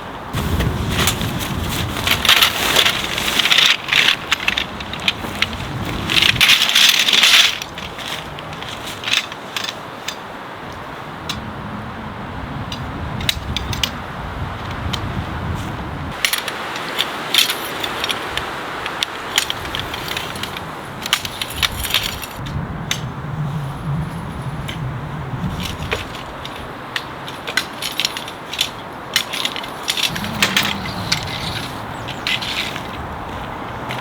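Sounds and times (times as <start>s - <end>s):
steady hiss: 0.0s - 11.0s
small hard objects clicking: 25.9s - 34.0s.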